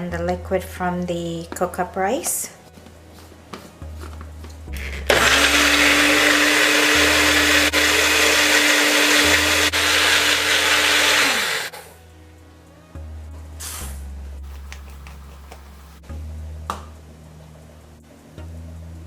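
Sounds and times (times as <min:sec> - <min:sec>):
electric blender running: 0:04.7 - 0:11.8.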